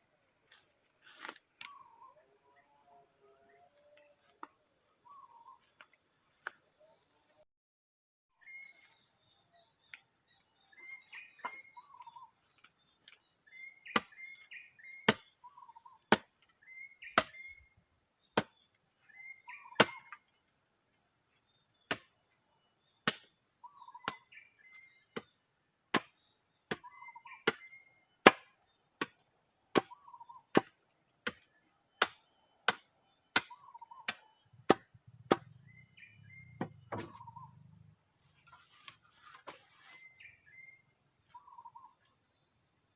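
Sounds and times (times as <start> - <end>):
insects droning: 0.0 - 7.4, 8.4 - 42.9
bird calling: 1.6 - 2.7, 3.5 - 5.7, 10.7 - 12.4, 19.0 - 20.2, 23.6 - 25.0, 26.8 - 28.0, 29.9 - 30.4, 33.5 - 37.8, 38.5 - 42.0
wood being chopped: 11.4 - 11.6, 13.8 - 14.4, 15.1 - 15.3, 16.1 - 16.4, 17.2 - 17.5, 18.4 - 18.6, 19.8 - 20.1, 21.9 - 22.1, 23.0 - 23.3, 25.9 - 26.8, 27.4 - 35.6, 36.6 - 37.4.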